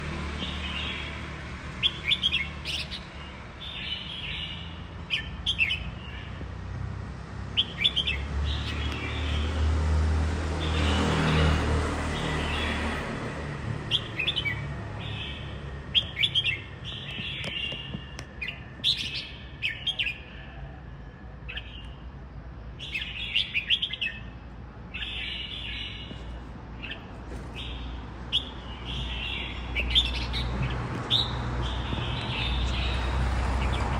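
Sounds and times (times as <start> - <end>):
songbird chirping and singing: 13.8 - 20.5, 22.8 - 33.9.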